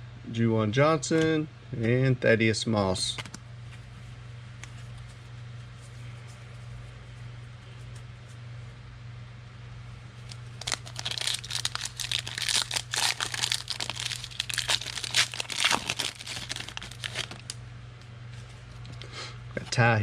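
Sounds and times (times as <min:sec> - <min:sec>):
foil wrapper crinkling: 0:10.2 - 0:17.6.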